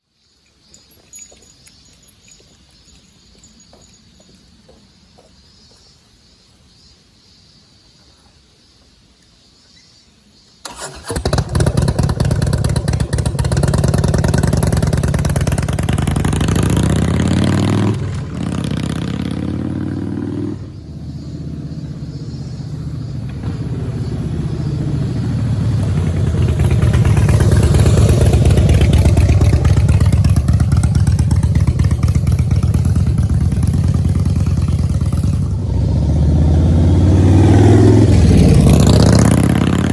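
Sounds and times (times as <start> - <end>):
motorcycle engine starting and revving: 10.6 - 39.9.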